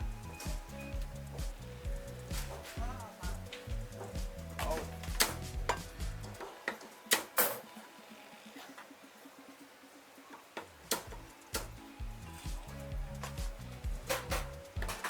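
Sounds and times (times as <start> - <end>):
background music with bass line: 0.0 - 7.7, 10.8 - 15.0.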